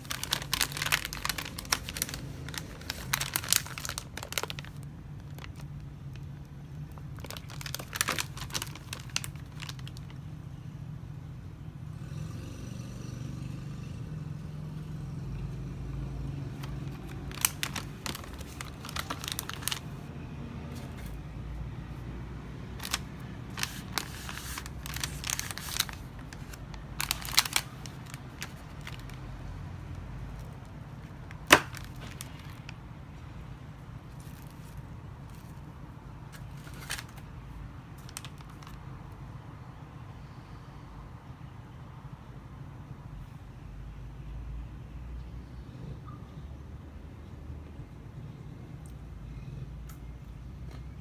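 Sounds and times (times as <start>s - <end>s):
wrapper crinkling and tearing: 0.0s - 10.2s, 16.6s - 20.1s, 22.8s - 29.4s, 30.4s - 32.8s, 34.1s - 35.6s, 36.3s - 37.3s, 38.0s - 38.8s.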